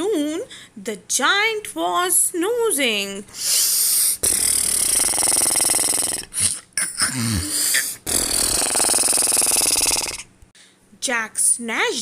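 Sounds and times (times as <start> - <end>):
snort: 3.4 - 10.3
rattling snores: 4.0 - 10.3.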